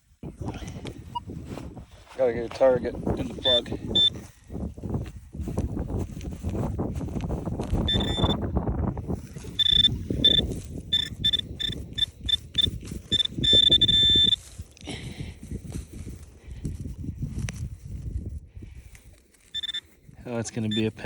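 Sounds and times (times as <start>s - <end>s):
dirt scuffing: 1.3s - 3.5s, 4.1s - 7.9s
metal detector beeping: 3.4s - 4.2s, 7.9s - 8.4s, 9.5s - 14.4s, 19.4s - 19.9s, 20.6s - 21.0s.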